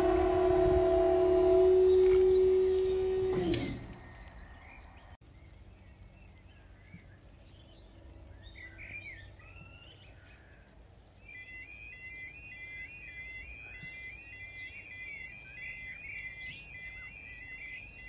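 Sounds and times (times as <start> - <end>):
loud steady alarm tone: 0.0 - 4.0
birds chirping faintly: 0.0 - 18.0
click: 2.0 - 4.7.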